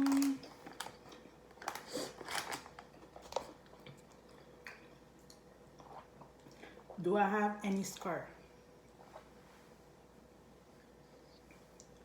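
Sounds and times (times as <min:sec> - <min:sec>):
person chewing crunchy food: 0:00.0 - 0:06.9.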